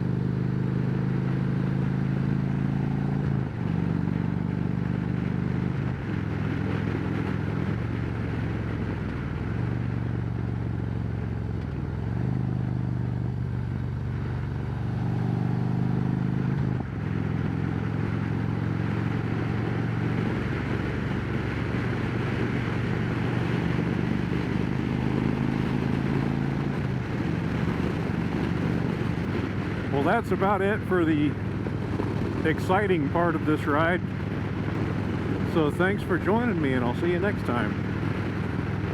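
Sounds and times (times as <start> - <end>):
motorcycle engine running: 0.0 - 38.9
wind rushing over microphone: 16.6 - 38.9.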